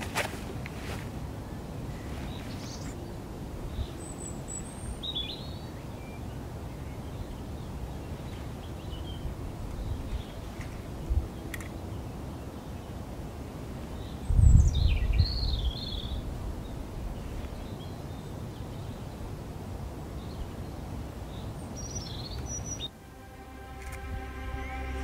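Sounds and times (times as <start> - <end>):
wind rumbling on microphone: 0.0 - 12.5, 13.2 - 22.9
small bird singing: 3.7 - 10.5, 13.9 - 19.1, 20.2 - 22.9
music: 22.9 - 25.0.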